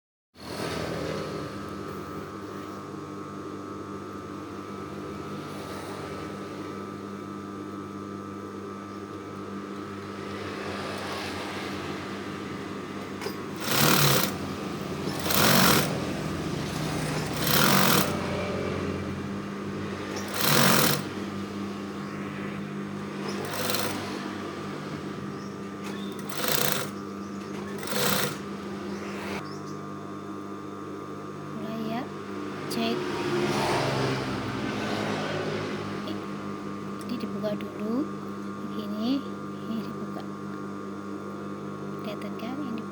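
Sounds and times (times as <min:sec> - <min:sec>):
steady background hum: 0:00.5 - 0:42.9
sewing machine stitching: 0:13.1 - 0:18.8, 0:19.8 - 0:21.2, 0:23.2 - 0:24.3, 0:25.8 - 0:28.6.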